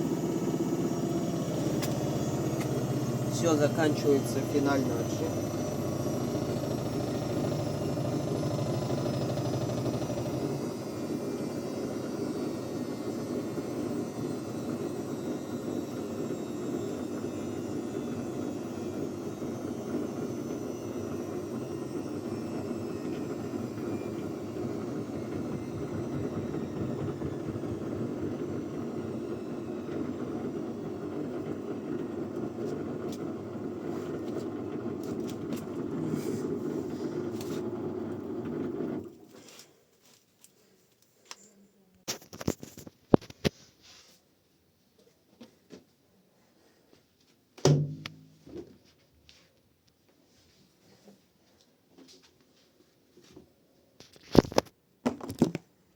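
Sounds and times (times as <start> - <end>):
washing machine drum running: 0.0 - 14.9, 21.8 - 34.0, 47.6 - 48.3
high motor whine: 0.0 - 39.0.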